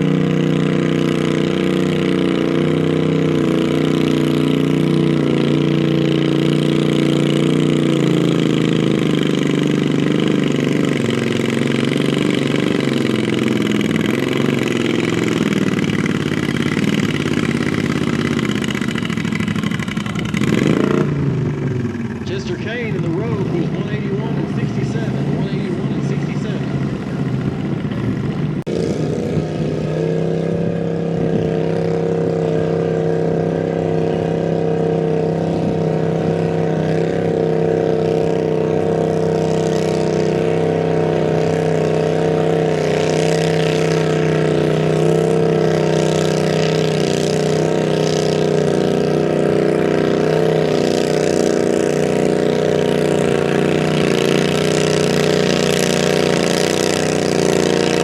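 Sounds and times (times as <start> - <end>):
garden tractor engine running: 0.0 - 58.0.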